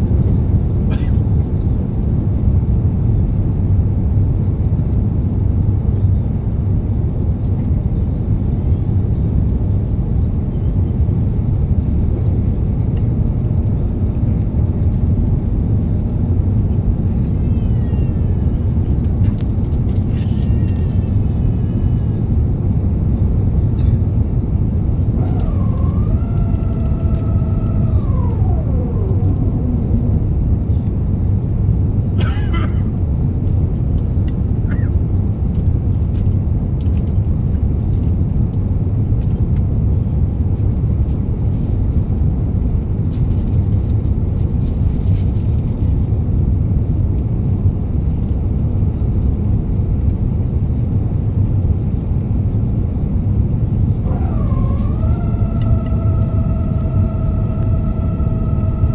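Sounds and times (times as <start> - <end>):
aircraft cabin engine roar: 0.0 - 58.9
rising and falling whine: 24.2 - 31.9, 53.2 - 58.9.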